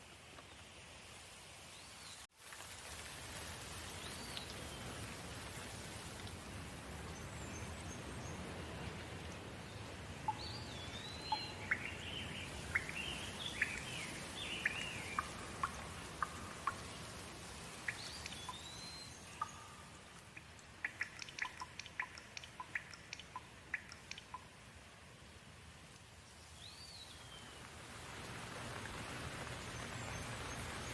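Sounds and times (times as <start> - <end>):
steady rain falling: 0.0 - 30.9
sharp water drips: 2.3 - 25.0.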